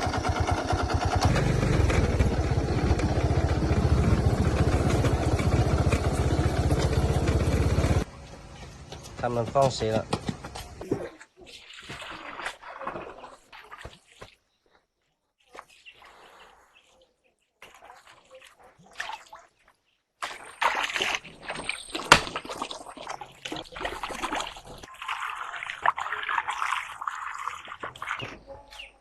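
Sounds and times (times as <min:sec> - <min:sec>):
water splashing and sloshing: 0:10.7 - 0:29.0.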